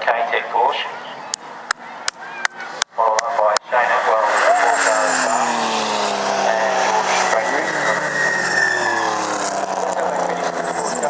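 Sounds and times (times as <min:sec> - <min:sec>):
racing car engines passing: 0:02.6 - 0:11.0.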